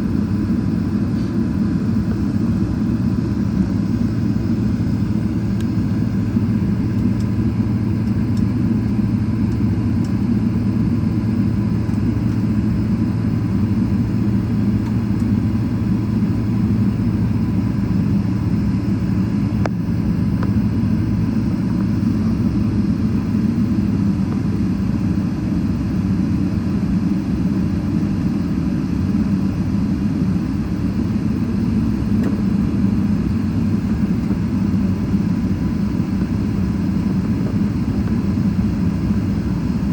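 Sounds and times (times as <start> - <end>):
faint engine whine: 0.0 - 39.9
jet engines low rumble: 0.0 - 39.9.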